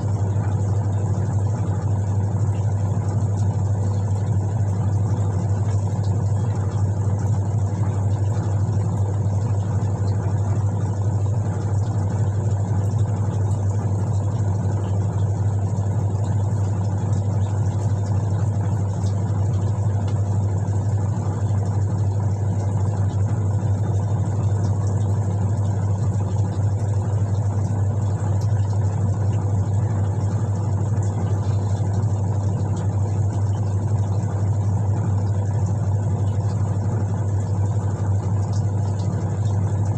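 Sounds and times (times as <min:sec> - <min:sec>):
washing machine motor hum: 0:00.0 - 0:39.9.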